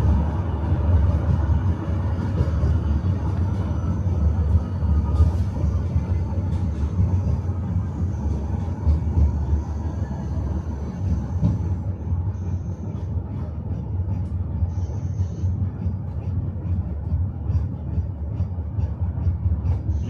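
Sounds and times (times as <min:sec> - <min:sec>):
wheels clacking over rails: 0:00.0 - 0:15.2
tram low rumble: 0:00.0 - 0:20.0.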